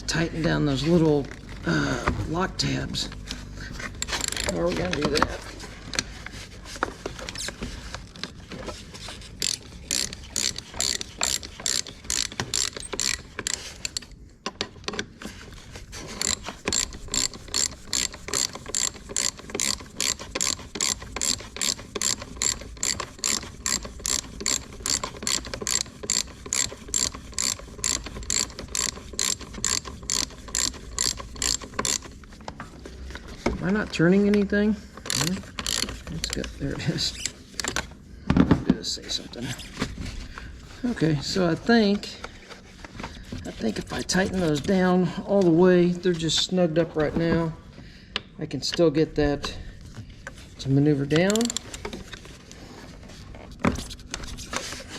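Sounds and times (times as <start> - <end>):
ratchet wrench clicking: 3.8 - 5.2, 9.4 - 14.1, 16.2 - 32.1, 35.1 - 36.5, 51.2 - 51.7.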